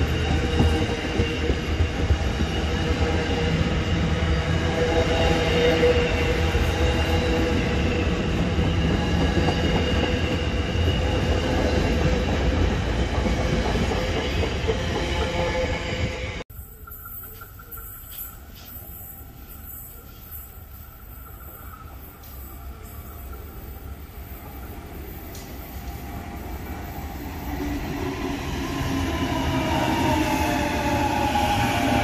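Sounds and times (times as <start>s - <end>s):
train wheels rumbling on rails: 0.0s - 16.4s.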